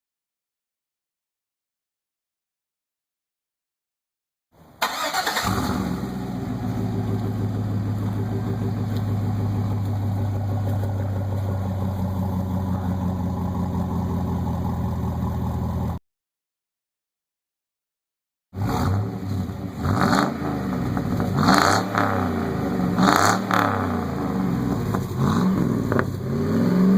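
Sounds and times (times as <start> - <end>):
truck engine starting and idling: 4.6 - 16.0, 18.6 - 26.9.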